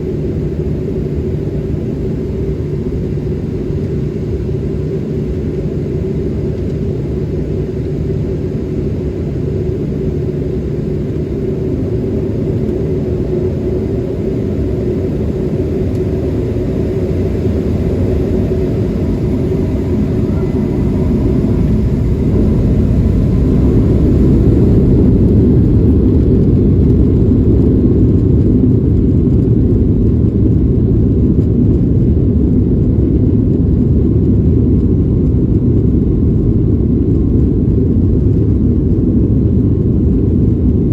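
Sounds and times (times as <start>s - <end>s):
faint rising whine: 0.0s - 29.4s
jet engines rumbling: 0.0s - 40.9s.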